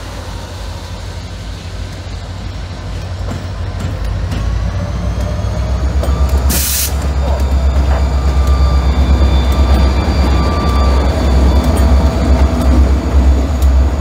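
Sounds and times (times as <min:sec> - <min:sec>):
diesel locomotive engine rumble: 0:00.0 - 0:14.0
loud hiss: 0:06.5 - 0:07.1.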